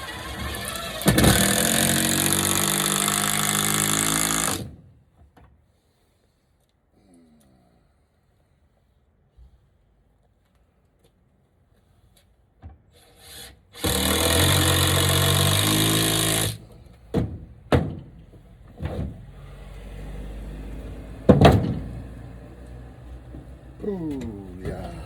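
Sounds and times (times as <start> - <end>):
power drill running into wood: 0.0 - 4.8, 13.0 - 16.8.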